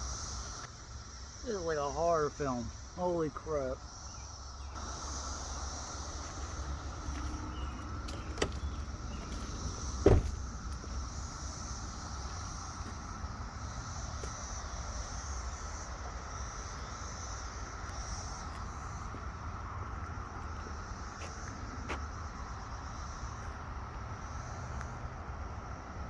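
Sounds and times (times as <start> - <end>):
cicadas droning: 0.0 - 26.0.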